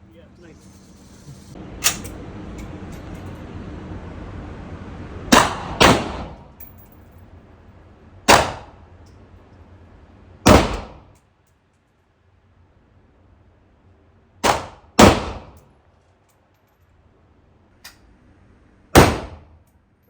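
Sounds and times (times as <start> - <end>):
gunshots: 5.3 - 6.4, 8.3 - 8.8, 10.5 - 11.1, 14.4 - 15.6, 19.0 - 19.5.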